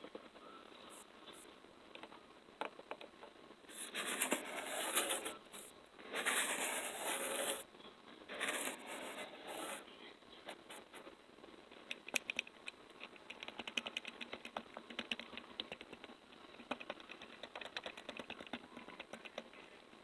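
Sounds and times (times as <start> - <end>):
scratchy crackling rubbing: 3.7 - 7.6, 8.3 - 9.8.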